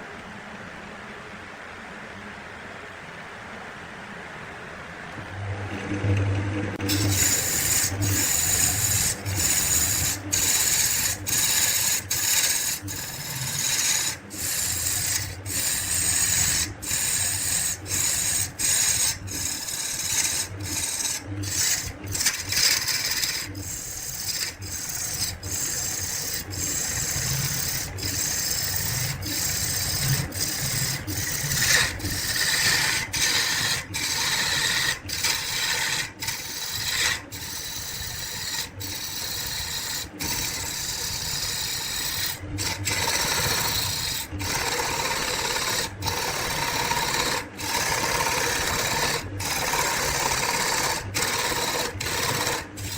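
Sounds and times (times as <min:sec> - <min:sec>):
lathe humming: 0:05.1 - 0:52.9
tool rasping on spinning wood: 0:06.0 - 0:52.9.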